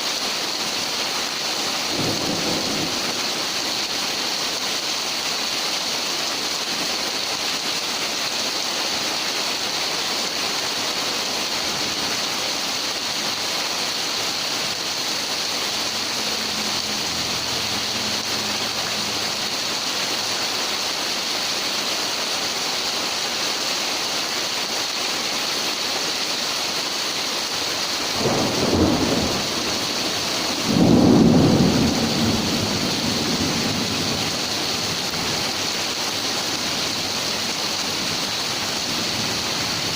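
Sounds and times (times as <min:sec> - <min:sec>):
heavy rain pouring: 0:00.0 - 0:39.9
loud thunderclaps rumbling: 0:01.9 - 0:03.4, 0:28.0 - 0:35.4.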